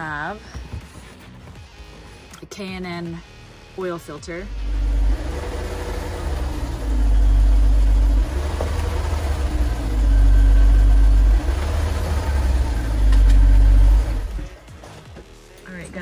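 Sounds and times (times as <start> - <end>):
car engine idling: 4.5 - 14.6.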